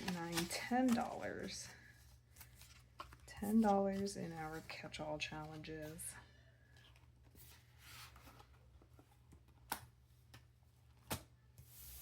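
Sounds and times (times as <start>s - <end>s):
paper rustling: 0.0s - 6.1s.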